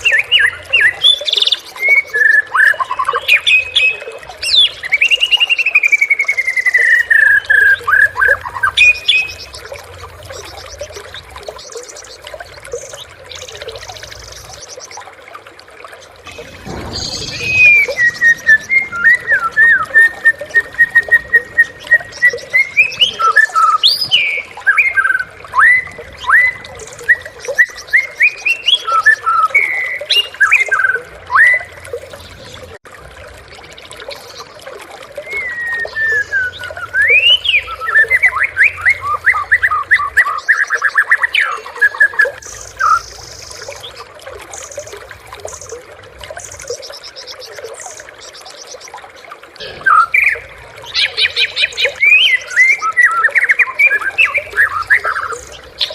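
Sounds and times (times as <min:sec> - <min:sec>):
bird singing whistled phrases: 0:16.3 - 0:31.7, 0:35.2 - 0:43.1, 0:49.6 - 0:55.9.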